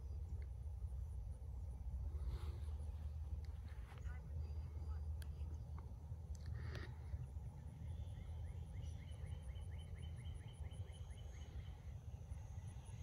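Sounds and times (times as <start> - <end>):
steady low rumble: 0.0 - 13.0
bird chirping: 7.5 - 13.0.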